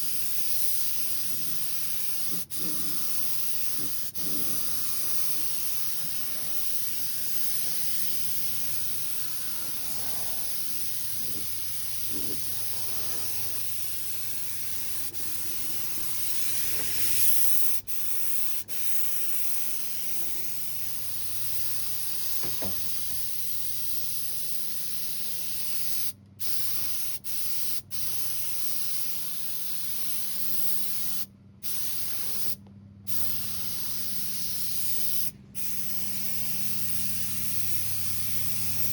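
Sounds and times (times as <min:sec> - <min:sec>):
paint spray gun hissing: 0:00.0 - 0:38.9.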